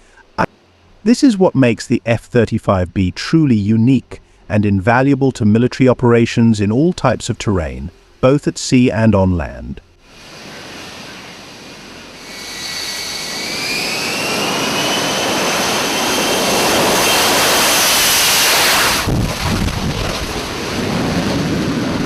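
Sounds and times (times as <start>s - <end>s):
jet engine roaring with whine: 9.8s - 22.0s.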